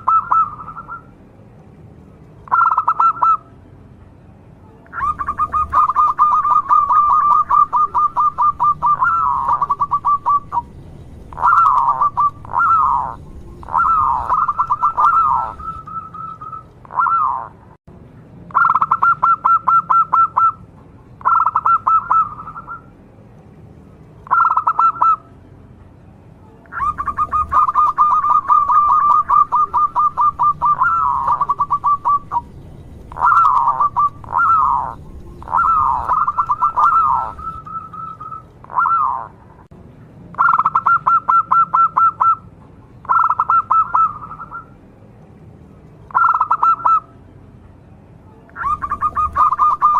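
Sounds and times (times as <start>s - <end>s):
zebra dove cooing: 0.0s - 1.1s, 2.5s - 3.4s, 4.9s - 10.7s, 11.3s - 17.6s, 21.2s - 22.8s, 24.3s - 25.2s, 26.7s - 32.5s, 33.1s - 39.4s, 46.1s - 47.0s, 48.6s - 49.9s.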